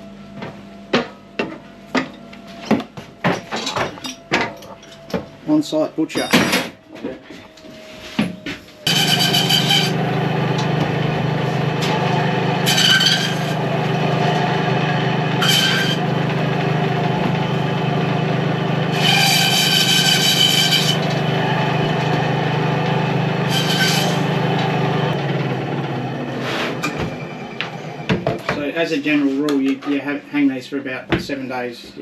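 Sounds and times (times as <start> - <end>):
electric band saw humming: 8.8 - 27.9
saw rasping through bone: 8.9 - 10.0, 11.8 - 13.8, 15.4 - 16.1, 18.9 - 21.2, 23.5 - 24.4.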